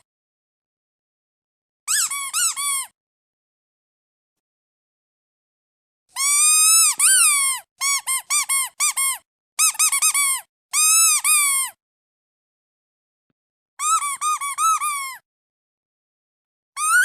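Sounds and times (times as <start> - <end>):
rubber duck toy squeaking: 1.9 - 3.0, 6.2 - 11.8, 13.8 - 15.2, 16.8 - 17.0.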